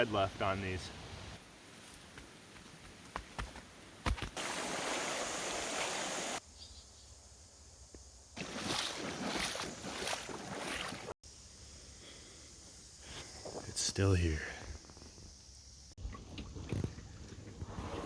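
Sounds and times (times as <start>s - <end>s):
creek water flowing: 4.3s - 6.4s, 8.4s - 11.2s.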